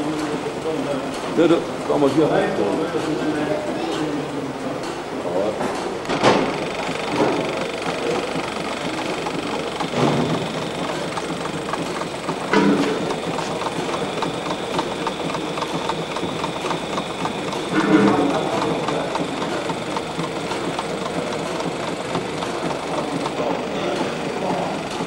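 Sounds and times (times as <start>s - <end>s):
model engines clattering and ticking: 0.0s - 25.0s
steady mechanical hum: 0.0s - 25.0s
louder lower engine bursts: 6.0s - 25.0s.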